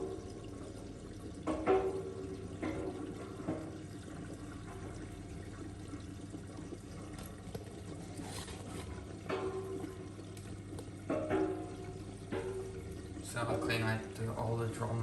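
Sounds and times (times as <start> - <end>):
water trickling into washing machine: 0.0 - 15.0.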